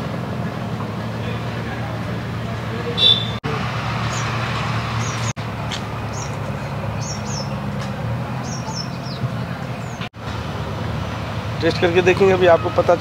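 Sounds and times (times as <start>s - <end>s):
road traffic rumble: 0.0s - 13.0s
small birds chirping: 3.0s - 3.4s, 5.0s - 5.4s, 6.0s - 10.1s.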